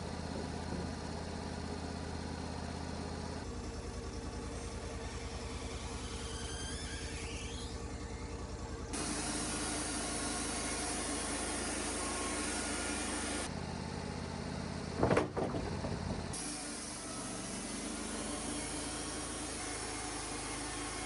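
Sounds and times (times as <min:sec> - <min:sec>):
sawmill engine running: 0:00.0 - 0:21.0
hiss: 0:09.0 - 0:13.5.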